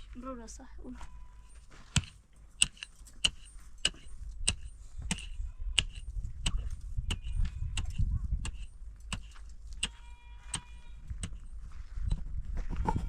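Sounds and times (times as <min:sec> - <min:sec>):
hammer driving nails into wood: 0:01.9 - 0:06.6.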